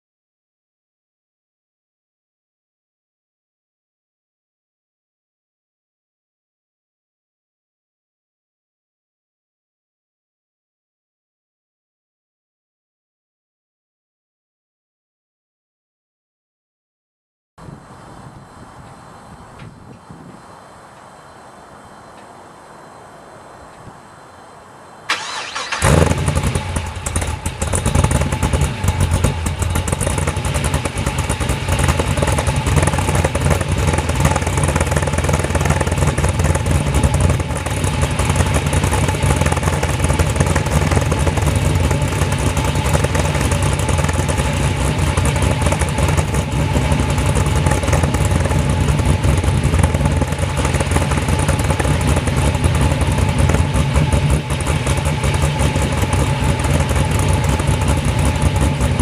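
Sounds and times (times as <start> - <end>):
car engine starting: 23.6 - 59.0
lumpy loud engine idle: 25.1 - 59.0.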